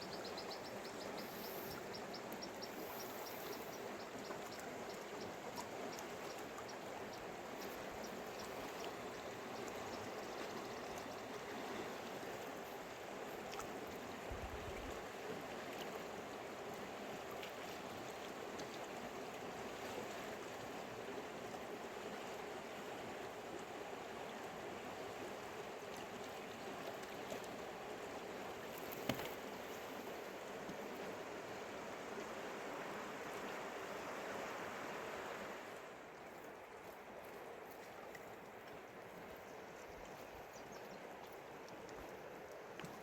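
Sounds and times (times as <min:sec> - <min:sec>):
river water rushing: 0:27.5 - 0:39.3.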